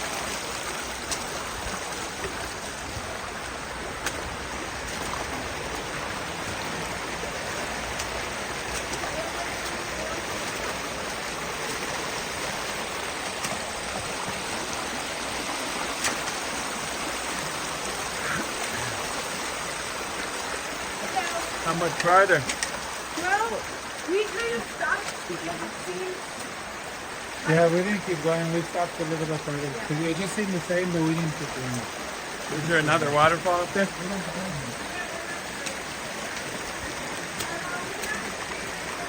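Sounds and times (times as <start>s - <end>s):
creek water rushing: 0.0s - 39.0s
faint sharp clicks: 22.0s - 22.8s.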